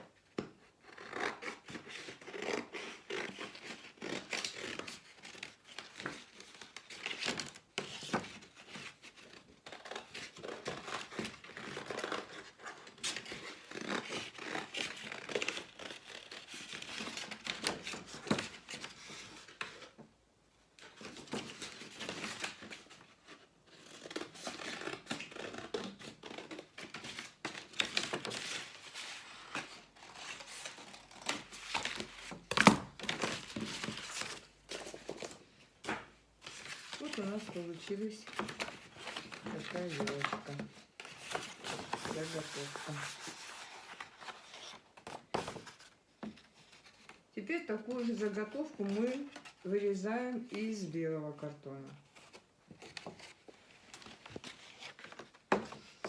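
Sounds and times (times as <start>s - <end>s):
scissors cutting cardboard: 0.4s - 19.8s, 21.0s - 35.3s.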